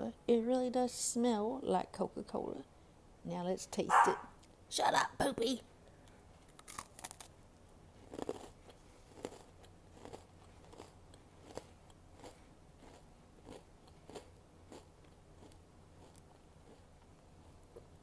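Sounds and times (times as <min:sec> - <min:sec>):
cookie crunching being chewed: 0:06.4 - 0:07.4, 0:08.0 - 0:18.0.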